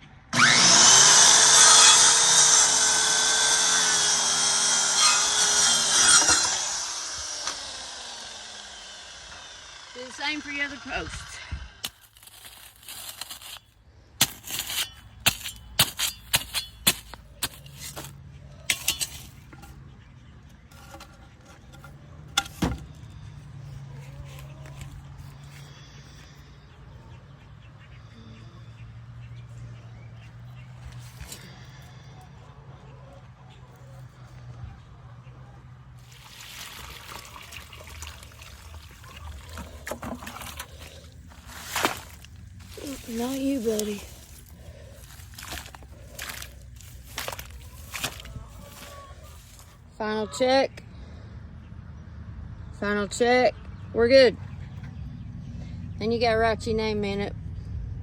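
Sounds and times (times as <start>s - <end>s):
water pouring and splashing: 36.0s - 43.8s.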